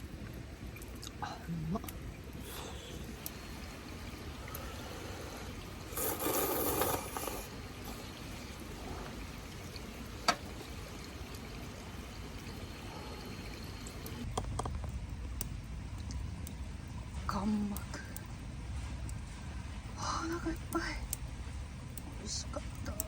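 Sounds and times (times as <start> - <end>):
liquid pouring: 0.0 - 15.0
low steady background noise: 0.0 - 23.0.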